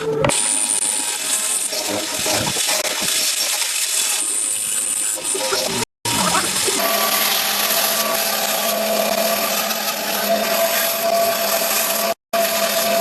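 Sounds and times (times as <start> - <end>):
power tool cutting wood: 0.3 - 13.0.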